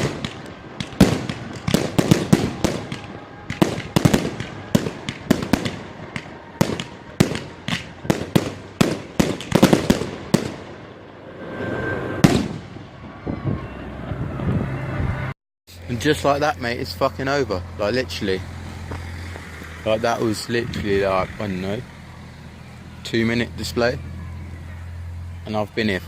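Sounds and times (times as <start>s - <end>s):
fireworks bangs and crackles: 0.0s - 14.7s.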